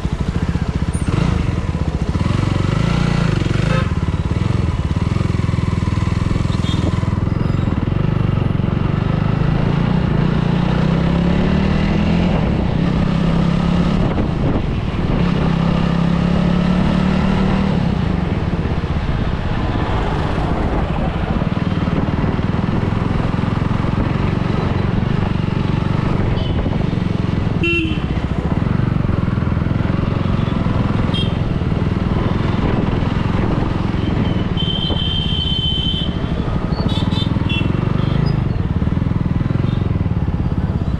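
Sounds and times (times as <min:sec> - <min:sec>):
motorcycle engine running: 0:00.0 - 0:40.9
vehicle horns honking: 0:03.6 - 0:04.0, 0:06.4 - 0:07.0, 0:26.3 - 0:26.8, 0:27.6 - 0:28.2, 0:30.4 - 0:31.5, 0:34.0 - 0:38.4.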